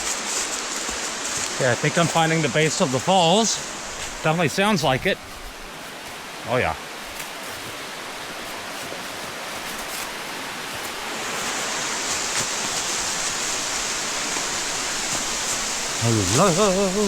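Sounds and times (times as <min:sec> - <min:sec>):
waterfall roaring: 0:00.1 - 0:05.2, 0:06.2 - 0:07.0, 0:10.2 - 0:17.0.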